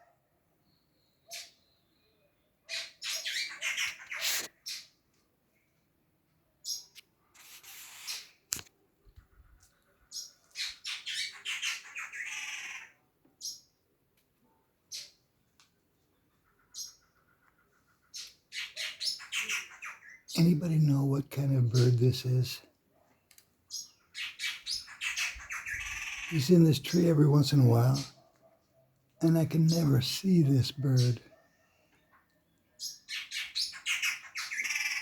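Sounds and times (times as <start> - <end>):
bird harsh scratchy calls: 2.7 - 4.9, 6.7 - 8.5, 10.1 - 12.9, 18.1 - 20.8, 23.7 - 28.3, 32.8 - 35.0.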